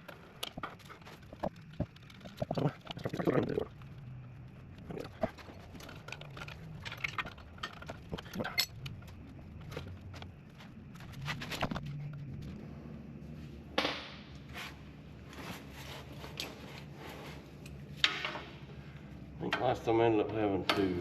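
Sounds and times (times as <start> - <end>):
rustling clatter: 0.0 - 12.6.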